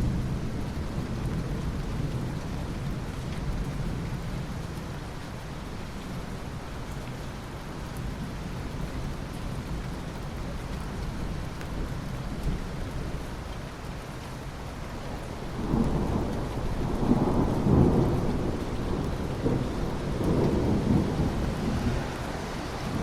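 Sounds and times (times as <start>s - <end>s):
steady rain falling: 0.0s - 23.0s
thunder rolling: 15.4s - 23.0s.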